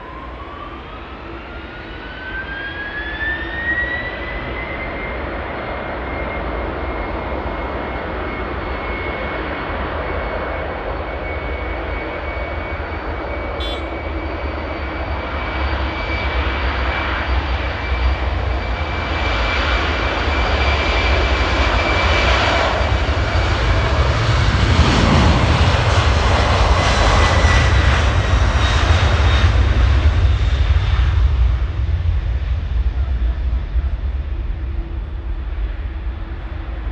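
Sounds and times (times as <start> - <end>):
engine whine: 10.5 - 36.9
jet roar: 13.6 - 14.6, 17.0 - 36.9.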